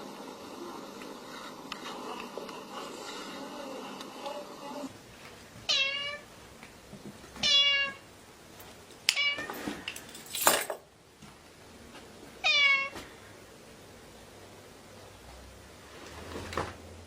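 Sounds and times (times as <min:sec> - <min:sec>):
cat meowing: 0:05.7 - 0:06.2, 0:07.4 - 0:08.0, 0:12.4 - 0:12.9.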